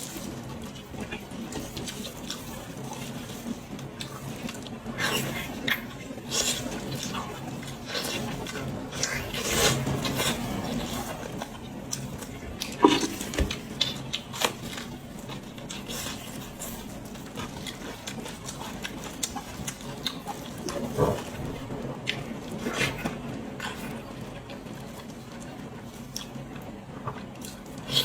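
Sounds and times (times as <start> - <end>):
pig chewing and biting: 0.0 - 28.0.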